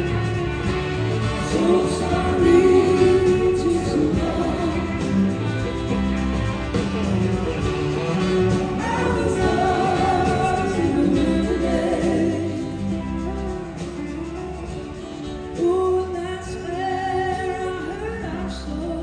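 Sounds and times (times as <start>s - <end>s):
voices singing together: 0.0s - 13.9s
live band playing: 0.0s - 19.0s.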